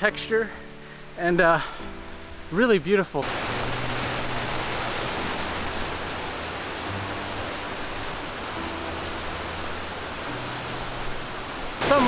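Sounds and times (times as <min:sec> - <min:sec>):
waterfall rushing over rock: 0:03.2 - 0:12.0.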